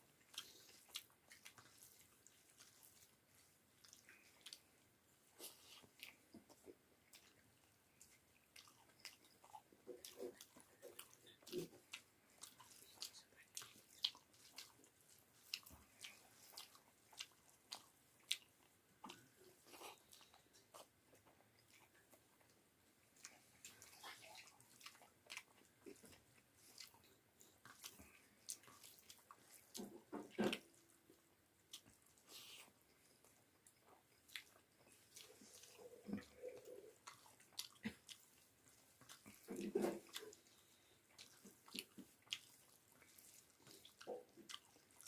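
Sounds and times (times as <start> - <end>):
person chewing food: 0.0 - 45.0.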